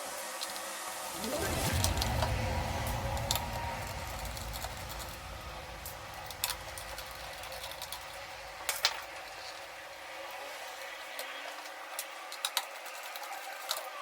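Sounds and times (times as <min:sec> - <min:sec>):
low steady hum: 0:01.0 - 0:09.6.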